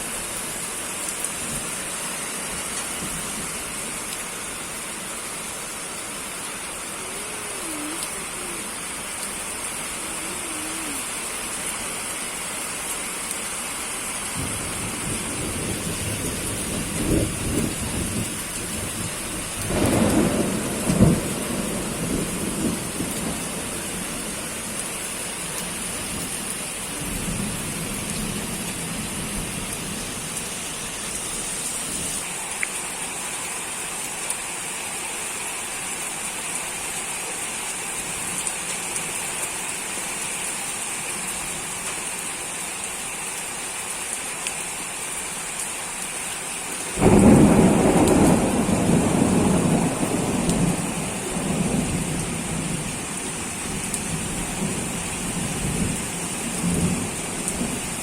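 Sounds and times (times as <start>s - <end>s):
steady rain hissing: 0.0s - 58.0s
thunder rumbling: 14.4s - 24.5s, 47.0s - 57.8s.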